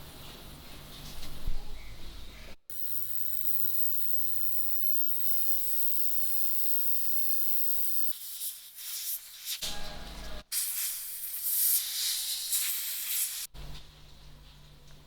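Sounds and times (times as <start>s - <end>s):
low hum: 2.7s - 8.1s
steady hiss: 2.7s - 8.2s.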